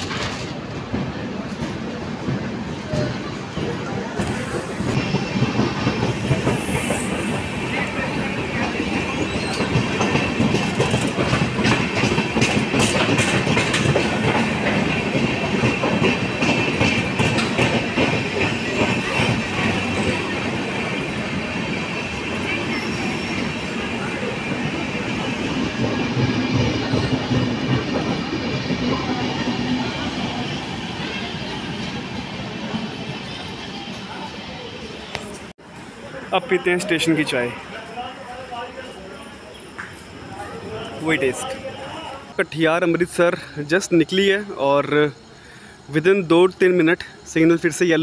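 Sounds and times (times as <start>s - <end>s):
train wheels clicking on rail joints: 0.0s - 32.0s
wheels squealing: 6.3s - 10.7s, 18.4s - 32.0s.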